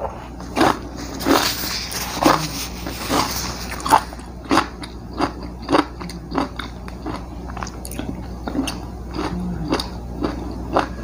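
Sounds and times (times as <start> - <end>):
person chewing food: 0.0 - 11.0
steady low hum: 0.0 - 11.0
teeth and mouth clicks: 3.8 - 11.0.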